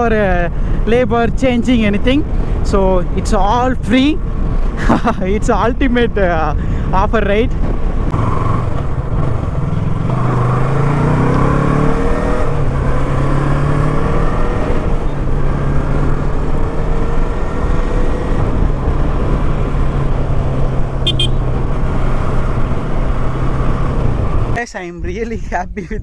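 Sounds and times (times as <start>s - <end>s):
wind noise: 0.0s - 26.0s
motorcycle engine accelerating: 7.6s - 24.6s.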